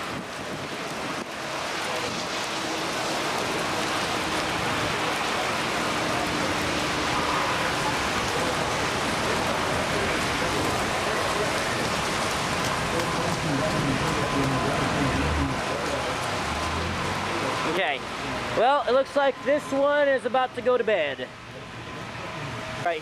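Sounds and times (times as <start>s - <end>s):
heavy rain downpour: 0.0s - 23.0s.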